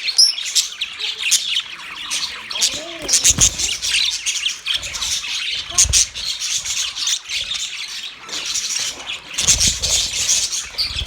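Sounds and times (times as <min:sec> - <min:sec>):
parrots chattering and squawking: 0:00.0 - 0:11.0.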